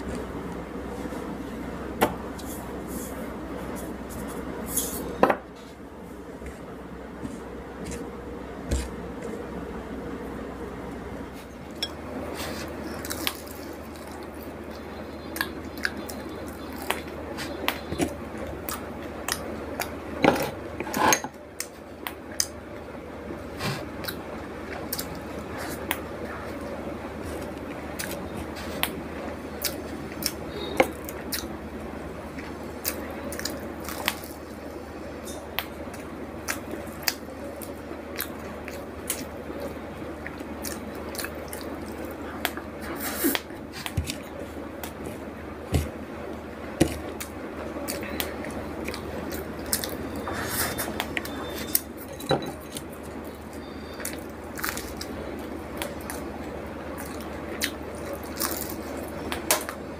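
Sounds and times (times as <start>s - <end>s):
chewing and wet mouth sounds: 11.3s - 20.6s, 23.8s - 31.5s, 32.3s - 46.0s, 46.8s - 59.8s.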